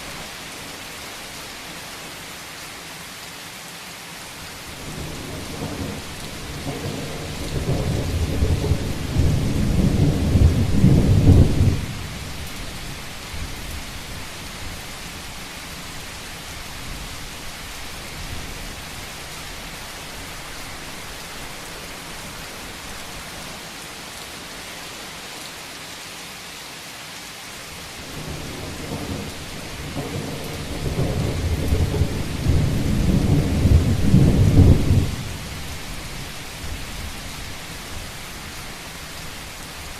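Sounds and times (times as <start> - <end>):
heavy rain on a rooftop: 0.0 - 39.9
low rolls of thunder: 4.8 - 12.5, 28.0 - 36.8.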